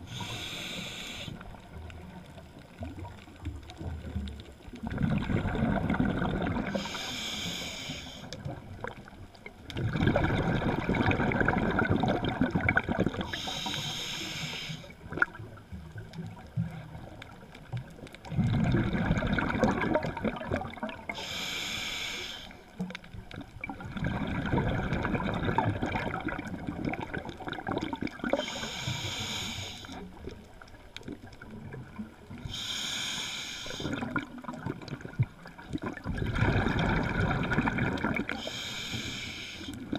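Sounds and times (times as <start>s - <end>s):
regulator hiss on inhale: 0.0s - 1.7s, 6.7s - 8.5s, 13.2s - 15.0s, 21.1s - 22.8s, 28.3s - 30.2s, 32.4s - 34.1s, 38.3s - 39.9s
exhaled bubbles rushing: 2.7s - 6.9s, 8.4s - 13.4s, 18.2s - 21.2s, 23.3s - 28.5s, 33.8s - 38.5s.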